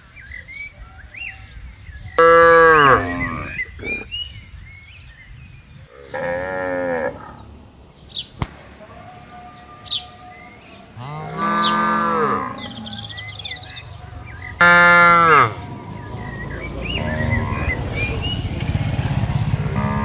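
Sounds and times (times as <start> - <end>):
low rumbling noise: 0.7 - 20.0
cattle mooing: 2.2 - 4.1, 5.9 - 7.4, 8.9 - 15.8, 19.7 - 20.0.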